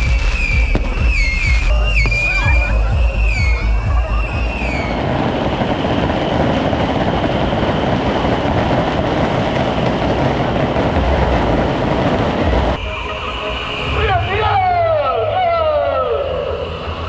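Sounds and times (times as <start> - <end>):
fireworks crackling and hissing: 0.0 - 12.8.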